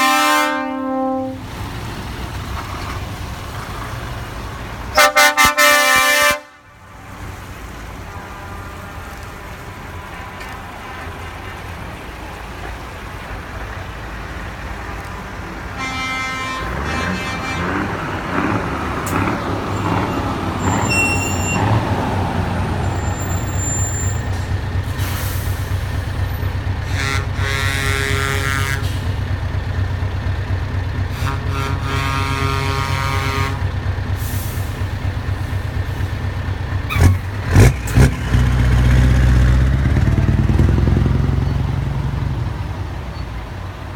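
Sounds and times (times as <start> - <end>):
multi-tone air horns: 0.0 - 1.4, 5.0 - 6.7, 15.7 - 18.5, 26.8 - 29.1, 31.1 - 33.7
truck diesel engines rumbling: 0.0 - 43.9
air brake hisses: 24.2 - 26.0, 34.2 - 34.9.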